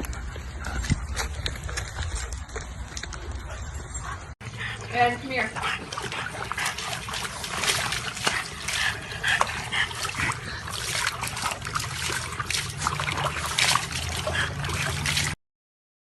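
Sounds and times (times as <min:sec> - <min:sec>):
water splashing and trickling: 0:00.0 - 0:15.4.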